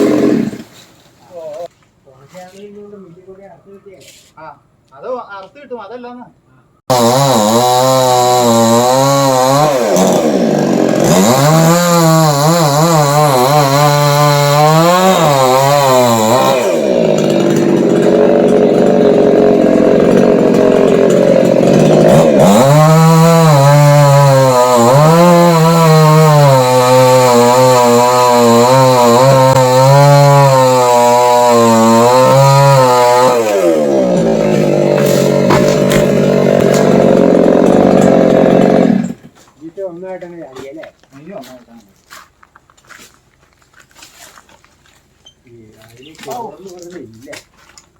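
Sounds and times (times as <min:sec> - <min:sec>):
chainsaw cutting wood: 0:00.0 - 0:01.0, 0:06.9 - 0:39.4.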